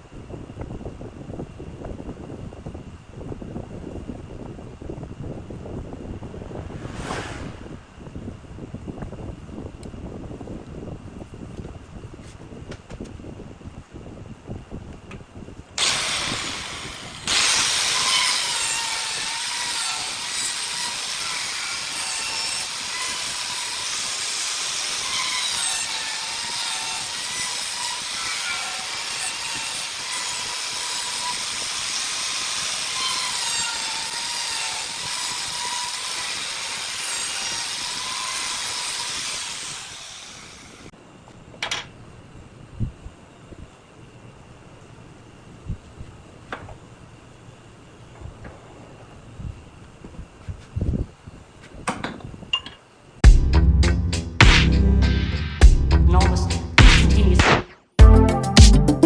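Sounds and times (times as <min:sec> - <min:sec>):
power tool working wood: 0:15.8 - 0:40.9.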